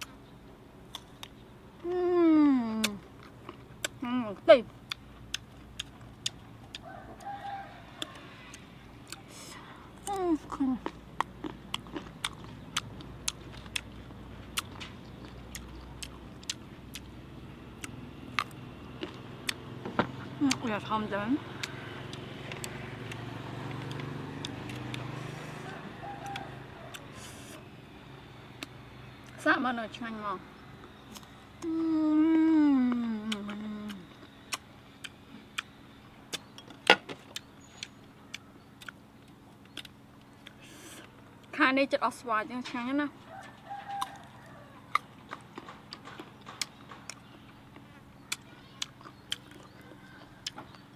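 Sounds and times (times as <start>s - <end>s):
faint low hum: 0.0s - 50.9s
sharp clicks and ticks: 20.4s - 25.1s, 28.6s - 29.4s, 36.3s - 40.6s.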